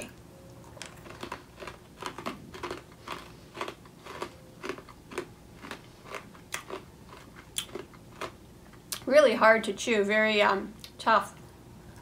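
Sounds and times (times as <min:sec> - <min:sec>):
crunchy popcorn chewing: 0:00.0 - 0:09.0.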